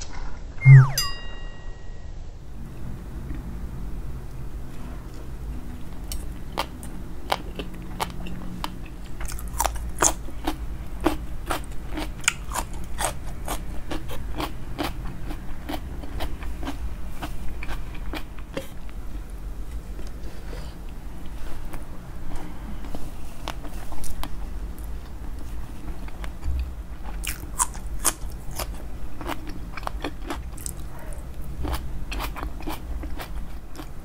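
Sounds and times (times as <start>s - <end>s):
crisp crunching and chewing: 6.0s - 18.7s, 27.0s - 34.0s.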